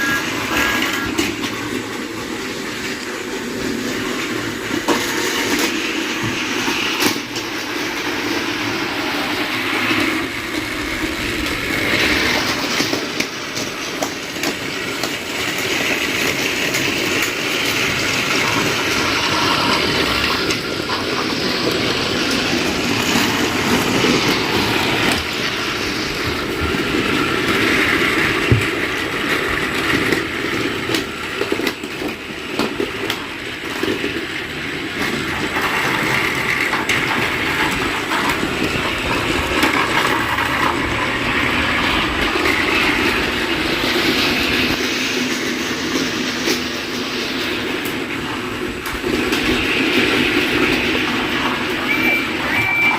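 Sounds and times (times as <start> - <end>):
toy train motors whirring: 0.0 - 52.9
toy train clicks: 6.5 - 43.3.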